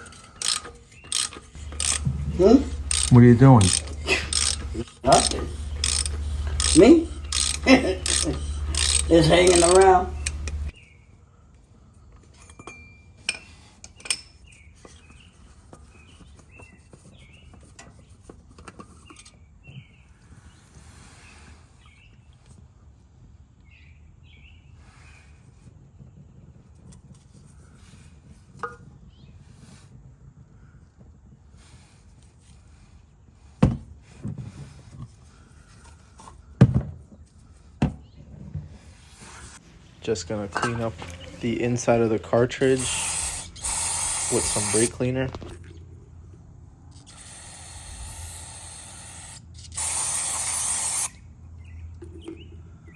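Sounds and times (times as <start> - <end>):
metallic clinks of tools: 0.0 - 10.6
birds chirping: 0.0 - 11.1, 39.9 - 45.8.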